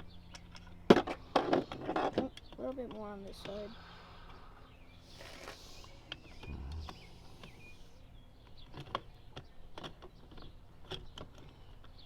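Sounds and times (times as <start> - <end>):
faint chirps: 3.5 - 8.0.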